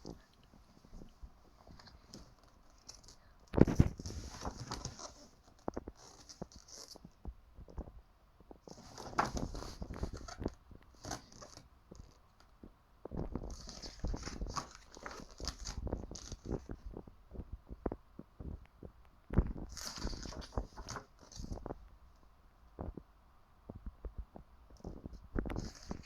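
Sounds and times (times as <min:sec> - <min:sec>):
book pages rustling: 0:00.0 - 0:07.4, 0:08.6 - 0:12.6, 0:13.2 - 0:17.1, 0:19.4 - 0:21.9, 0:24.7 - 0:26.0.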